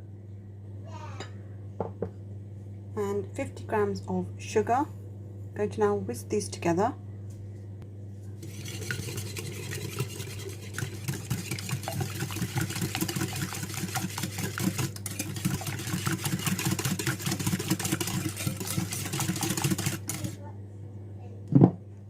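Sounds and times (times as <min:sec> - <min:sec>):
whisk beating in a bowl: 0:08.4 - 0:20.4.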